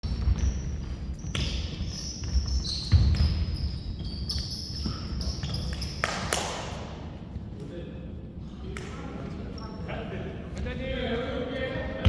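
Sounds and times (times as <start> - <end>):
basketball bouncing: 0.0 - 6.2
sneakers squeaking on hardwood: 0.0 - 6.4.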